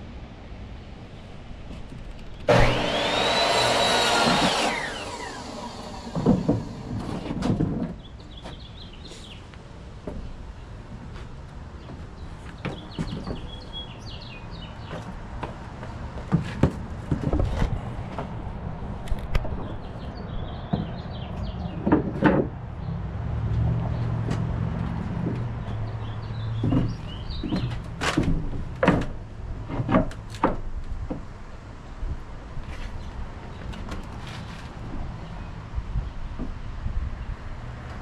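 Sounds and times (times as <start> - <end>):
knocks and thuds: 6.0 - 8.0, 26.6 - 31.3
birds chirping: 11.8 - 15.1, 25.6 - 27.8.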